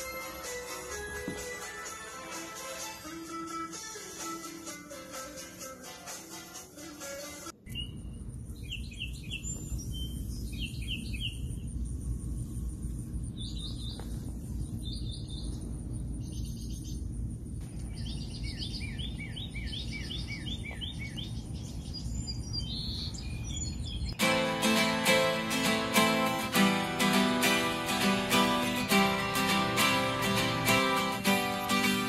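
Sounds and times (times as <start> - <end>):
low outdoor rumble: 7.6 - 32.0
small birds chirping: 7.6 - 32.0
guitar music: 24.2 - 32.0.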